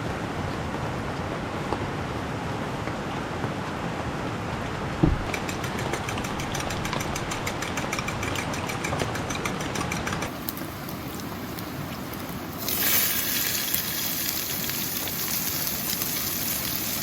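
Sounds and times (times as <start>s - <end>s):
thump: 5.0s - 5.3s
heavy rain hissing: 10.3s - 17.0s.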